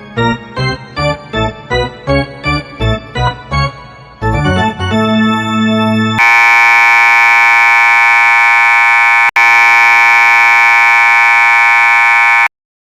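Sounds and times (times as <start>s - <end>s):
electronic buzzing tone: 6.2s - 12.5s.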